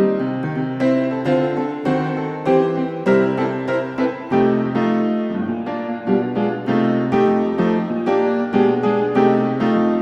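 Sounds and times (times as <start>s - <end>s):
gentle piano music: 0.0s - 10.0s.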